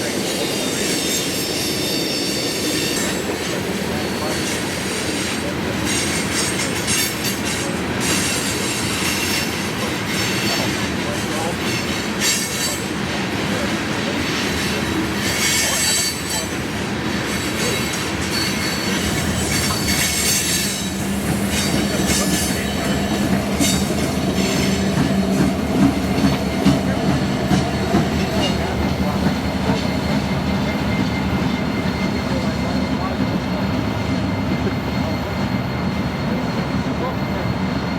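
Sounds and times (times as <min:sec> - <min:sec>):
freight train rumbling past: 0:00.0 - 0:37.9
high-pitched wheel squeal: 0:17.3 - 0:23.0.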